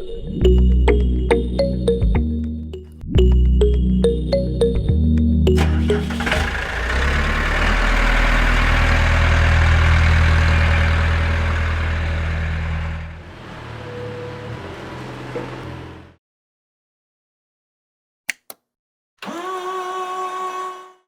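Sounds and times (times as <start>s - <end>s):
plucked background music: 0.0s - 6.4s
small tractor engine running: 5.6s - 16.1s, 19.2s - 20.3s.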